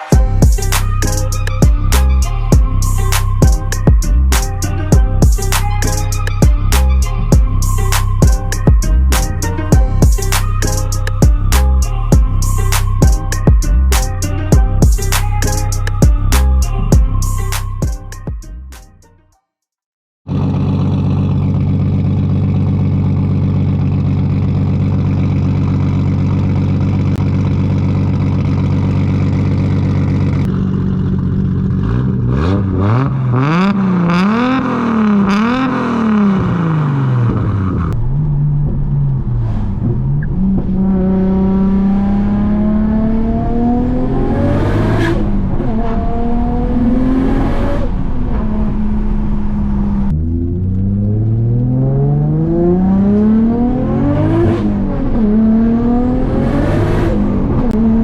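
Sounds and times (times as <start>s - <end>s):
car engine revving: 20.3s - 58.0s.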